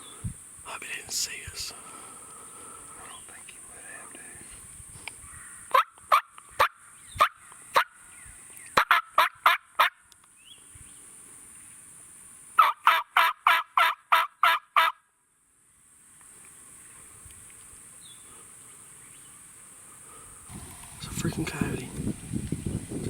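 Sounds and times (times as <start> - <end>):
high insect hum: 0.0 - 8.8, 10.1 - 12.6, 15.6 - 23.0
turkey yelps: 5.7 - 7.9, 8.8 - 10.0, 12.6 - 15.0.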